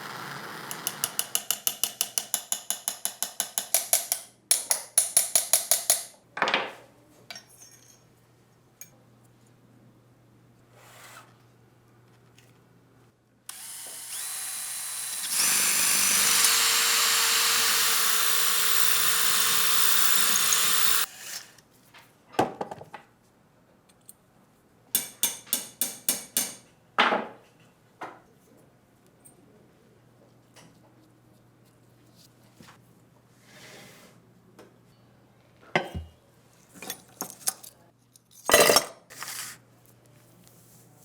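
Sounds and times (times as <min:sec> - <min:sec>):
electric power tool running: 0:13.5 - 0:21.1.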